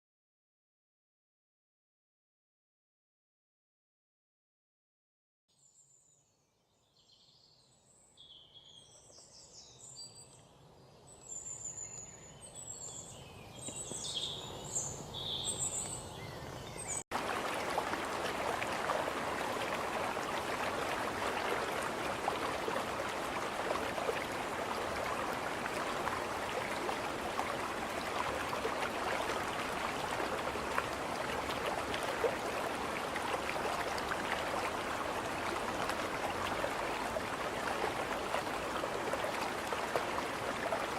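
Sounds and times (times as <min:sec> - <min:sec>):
songbirds chirping: 0:05.7 - 0:40.9
flowing water: 0:17.0 - 0:40.9.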